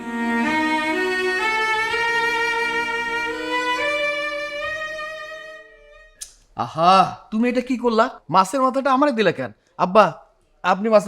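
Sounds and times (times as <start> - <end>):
slow bowed string melody: 0.0 - 6.4.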